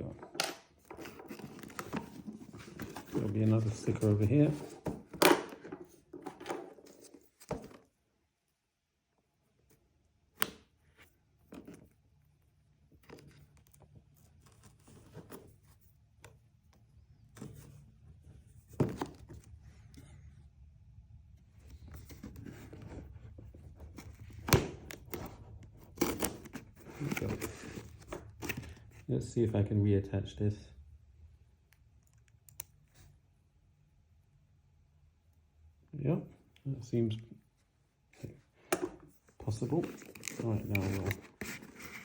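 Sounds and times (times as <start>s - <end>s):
cardboard box being handled: 1.0s - 5.1s, 21.7s - 28.7s, 39.4s - 42.0s.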